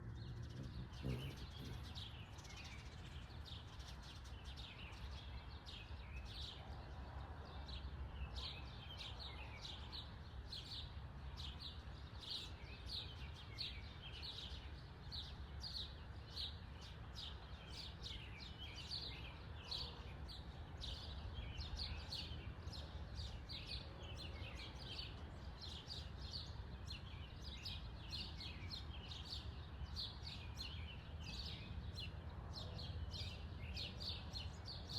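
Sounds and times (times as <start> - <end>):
small bird chirping: 0.0 - 6.6.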